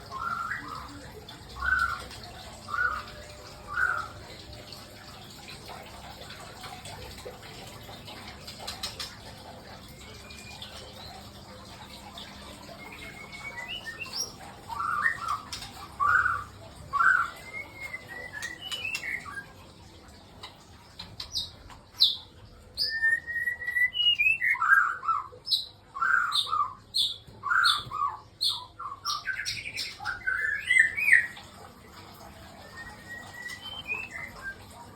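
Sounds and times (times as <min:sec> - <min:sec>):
bird chirping calls: 0:00.0 - 0:05.2, 0:08.1 - 0:19.7, 0:21.0 - 0:31.6, 0:32.4 - 0:34.9
rising whistled bird notes: 0:12.6 - 0:19.6, 0:22.8 - 0:25.3, 0:32.5 - 0:34.8.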